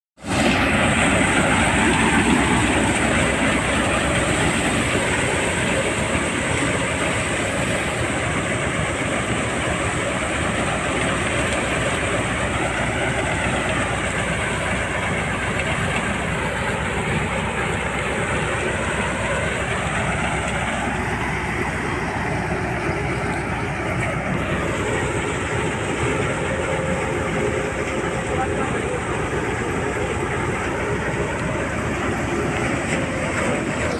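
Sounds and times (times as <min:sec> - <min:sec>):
threshing machine rattle and whirr: 0:00.2 - 0:33.9
tractor engine drone: 0:00.2 - 0:33.9.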